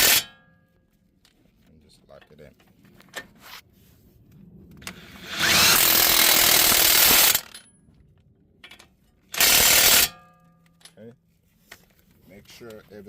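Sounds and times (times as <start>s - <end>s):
impact wrench hammering: 0.0s - 0.3s, 5.3s - 7.6s, 9.4s - 10.3s.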